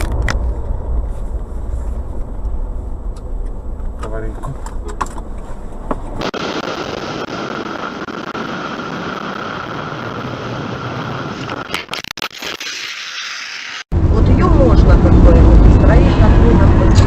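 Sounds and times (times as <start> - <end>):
car road and engine noise: 0.0 - 6.7, 13.3 - 17.0.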